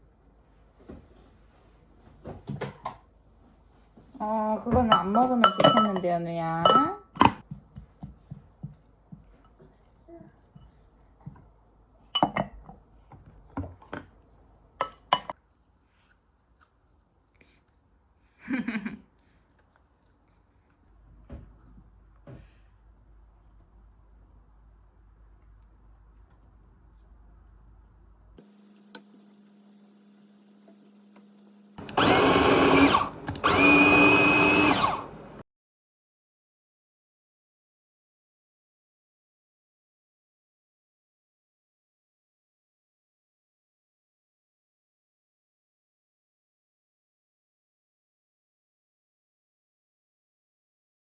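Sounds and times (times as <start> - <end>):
electric blender motor: 28.4 - 35.4.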